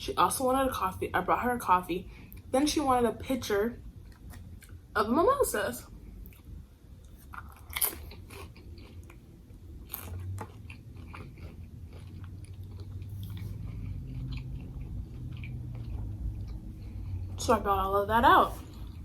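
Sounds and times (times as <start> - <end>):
chewing: 4.0 - 4.8, 6.2 - 17.4
crunching bread crust: 6.2 - 17.2.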